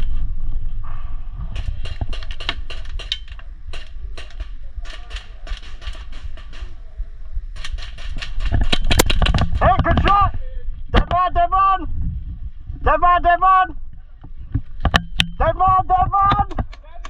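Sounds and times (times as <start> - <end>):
low steady rumble: 0.0 - 17.0
airsoft guns firing: 1.5 - 10.2.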